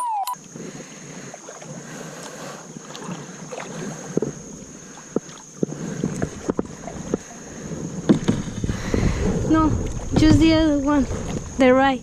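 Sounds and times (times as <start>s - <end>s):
thin high tone: 0.0s - 0.5s
paddles splashing water: 0.4s - 11.8s
wind on microphone: 5.7s - 12.0s.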